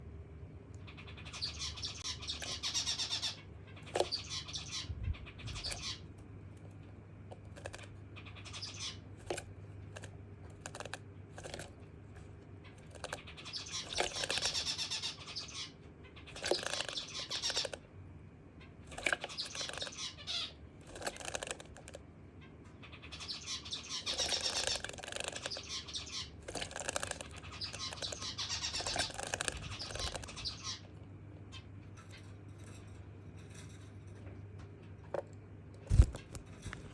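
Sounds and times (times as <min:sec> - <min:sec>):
small clicks: 0:05.6 - 0:07.9, 0:09.2 - 0:11.8, 0:20.8 - 0:22.0, 0:26.4 - 0:30.4.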